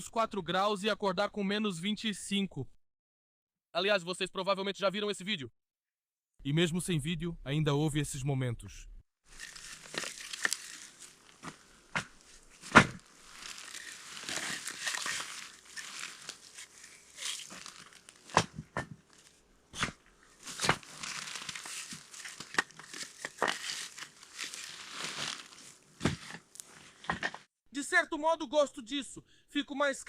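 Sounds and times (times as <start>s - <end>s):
material rustling and crinkling: 9.3s - 27.5s.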